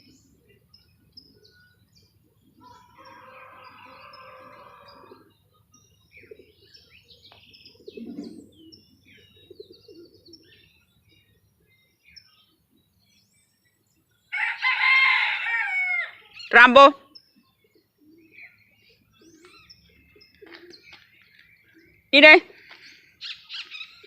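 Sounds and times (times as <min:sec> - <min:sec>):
small birds chirping: 0:00.0 - 0:24.0
rooster crowing: 0:02.6 - 0:05.3, 0:14.3 - 0:16.2.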